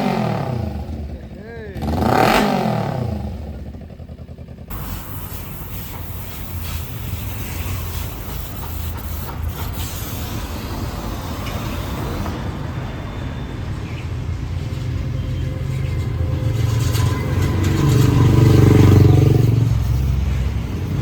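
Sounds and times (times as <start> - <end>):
motorcycle engine running: 0.0 - 8.8, 15.1 - 21.0.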